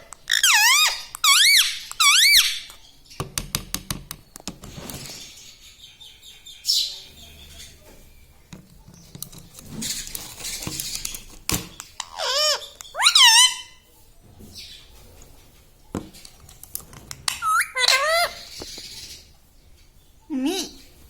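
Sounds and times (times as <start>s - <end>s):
parakeet squawk: 0.3s - 2.7s, 12.0s - 13.8s, 17.3s - 19.2s
rustling: 4.4s - 5.6s, 7.4s - 12.0s.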